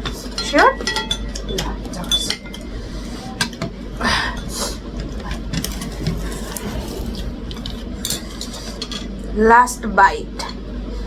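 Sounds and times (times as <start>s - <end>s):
utensils clinking on a plate: 0.0s - 3.7s
low hum: 3.9s - 10.0s.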